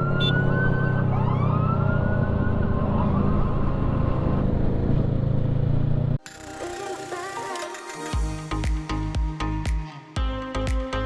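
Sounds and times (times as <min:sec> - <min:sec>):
siren wailing: 0:00.0 - 0:04.5.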